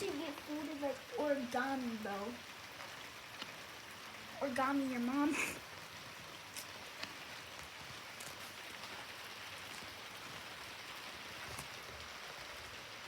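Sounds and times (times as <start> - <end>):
steady rain: 0.0 - 13.0
single raindrop ticks: 3.4 - 3.6.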